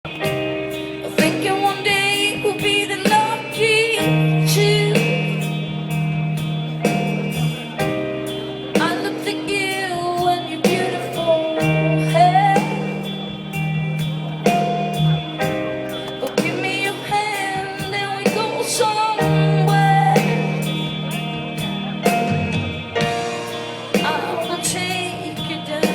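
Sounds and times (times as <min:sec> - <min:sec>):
live rock band music: 0:00.0 - 0:25.9.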